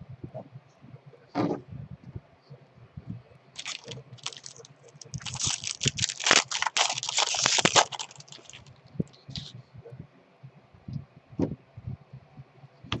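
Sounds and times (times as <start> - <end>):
plastic wrapper crinkling and tearing: 3.6 - 8.7, 9.3 - 9.5.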